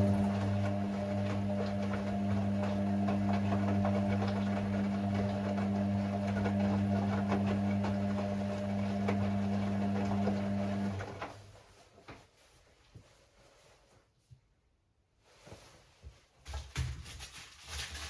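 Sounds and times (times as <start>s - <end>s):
washing machine humming: 0.0s - 11.6s.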